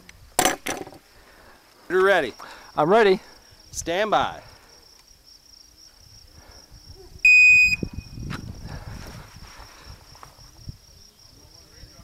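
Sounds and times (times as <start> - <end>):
crickets chirring: 0.0 - 12.0
electronic beep: 7.3 - 8.2.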